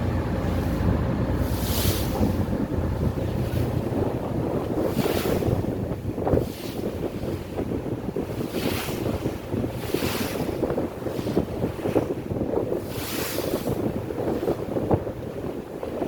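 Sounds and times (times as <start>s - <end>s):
water rushing past: 0.0s - 7.8s
boat engine rumble: 0.0s - 16.0s
wind buffeting microphone: 0.0s - 16.0s.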